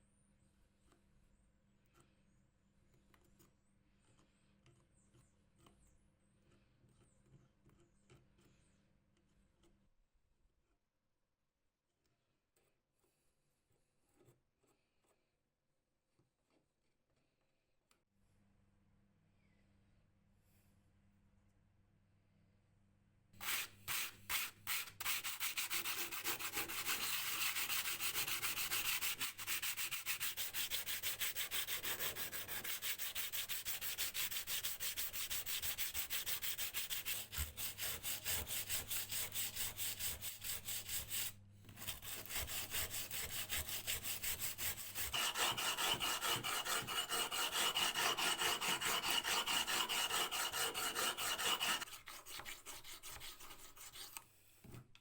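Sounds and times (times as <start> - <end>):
hand sanding strokes: 23.4 - 54.2.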